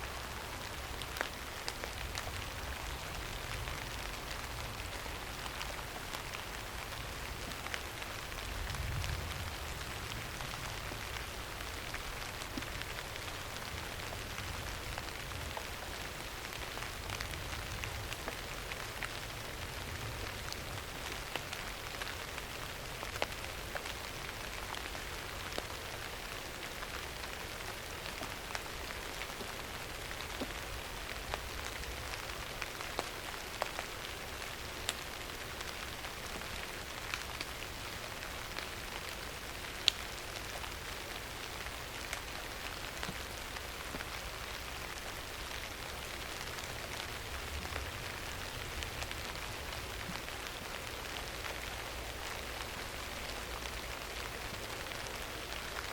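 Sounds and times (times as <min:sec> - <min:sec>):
rain hissing on a surface: 0:00.0 - 0:55.9
raindrop ticks: 0:00.9 - 0:55.9.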